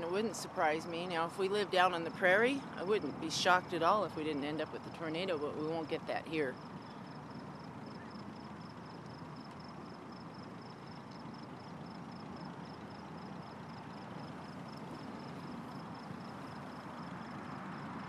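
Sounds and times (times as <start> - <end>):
low background rumble: 0.0 - 18.0
cricket chirping: 6.5 - 18.0.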